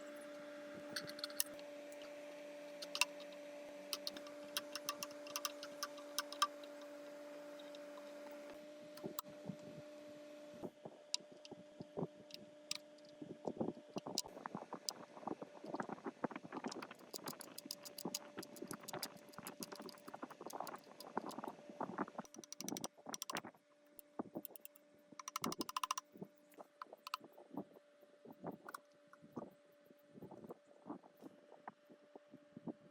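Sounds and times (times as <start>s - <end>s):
faint steady hum: 0.0s - 32.9s
rapid clicking bursts: 2.8s - 7.0s, 16.6s - 21.5s, 22.2s - 26.1s.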